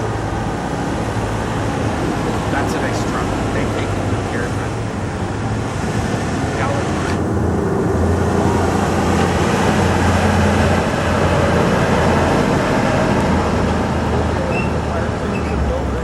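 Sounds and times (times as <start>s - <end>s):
street noise: 0.0s - 16.0s
vehicle engine humming: 0.0s - 16.0s.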